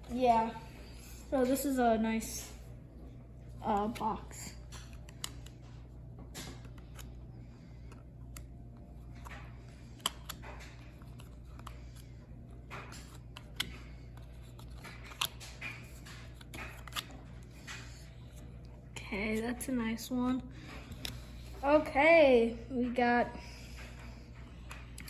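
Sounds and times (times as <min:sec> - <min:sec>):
cards clicking: 0:03.6 - 0:18.5.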